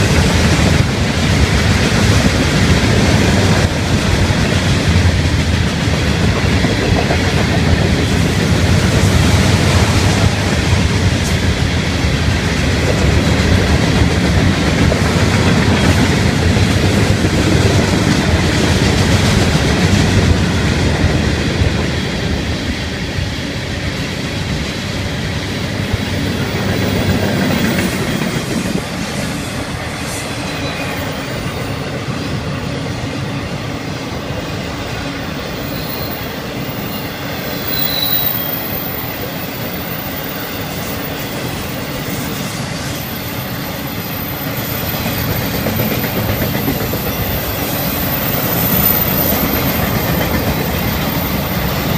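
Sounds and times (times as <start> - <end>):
steel wheels rumbling on rail: 0.0 - 51.9
high wheel squeal: 35.5 - 42.4.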